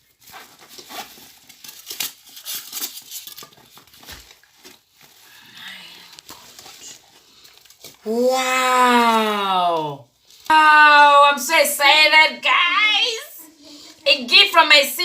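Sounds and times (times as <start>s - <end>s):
wrapping crinkling and tearing: 0.0s - 10.5s.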